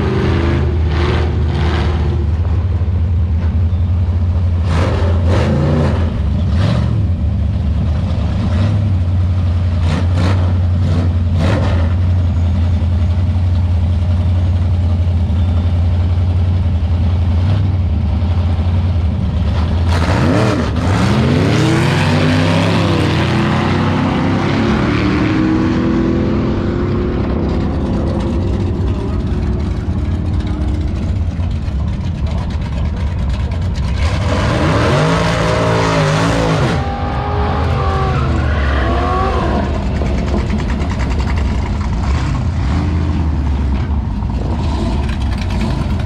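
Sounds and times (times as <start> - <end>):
drag car engines rumbling: 0.0 - 46.0
engine revving up: 4.6 - 7.1, 19.6 - 31.3, 33.8 - 46.0.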